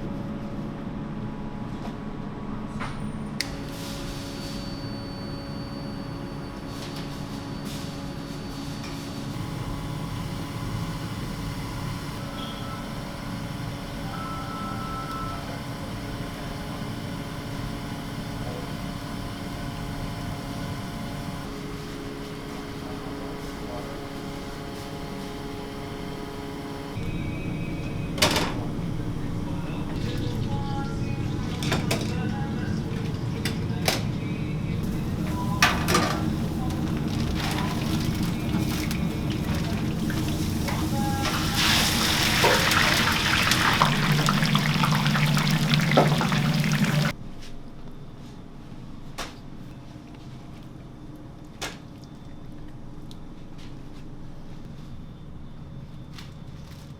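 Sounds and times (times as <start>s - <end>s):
mechanical hum: 0.0s - 56.9s
hot oil sizzling: 34.8s - 47.1s
utensils clattering: 34.8s - 47.1s.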